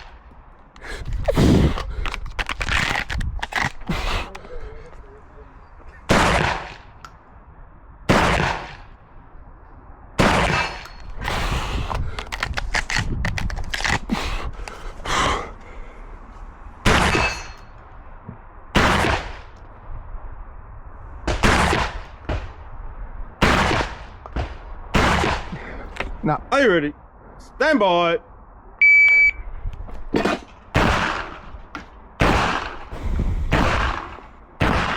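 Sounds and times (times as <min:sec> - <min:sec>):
shotgun clicks and rattles: 0:00.6 - 0:03.9, 0:10.7 - 0:14.8
shotgun shots: 0:06.1 - 0:07.0, 0:08.1 - 0:09.0, 0:10.2 - 0:11.5, 0:16.8 - 0:17.6, 0:18.8 - 0:19.6, 0:21.3 - 0:22.6, 0:23.4 - 0:25.6, 0:30.2 - 0:34.9.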